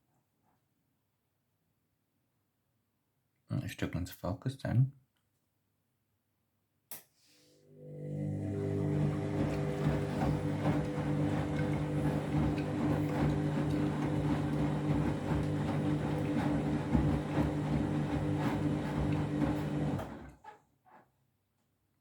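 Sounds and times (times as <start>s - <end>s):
washing machine motor hum: 7.6s - 20.4s
washing machine drum tumbling: 8.7s - 20.1s.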